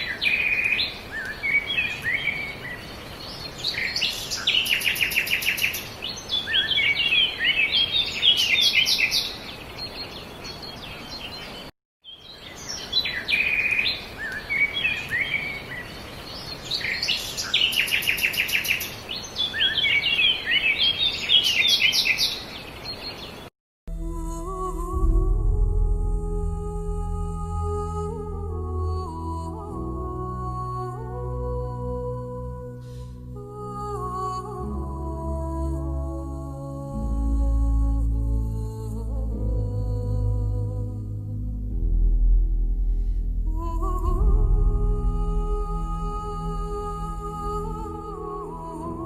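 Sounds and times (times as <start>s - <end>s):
songbirds singing: 0.0s - 23.5s.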